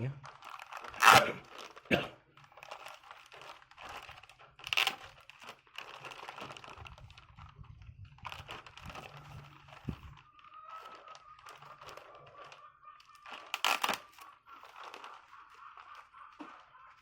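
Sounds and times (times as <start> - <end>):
packaging crinkling and tearing: 0.1 - 17.0.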